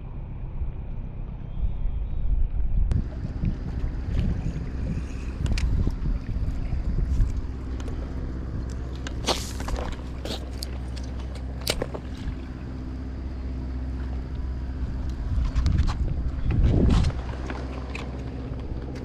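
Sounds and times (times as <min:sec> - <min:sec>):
engine idling: 0:02.9 - 0:19.0.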